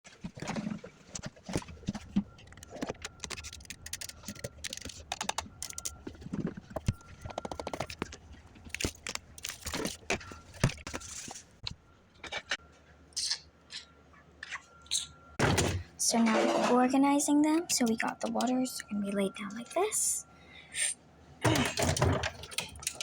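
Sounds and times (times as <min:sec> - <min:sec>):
items knocking and clattering: 0:00.1 - 0:12.6, 0:15.4 - 0:16.9, 0:21.4 - 0:23.0.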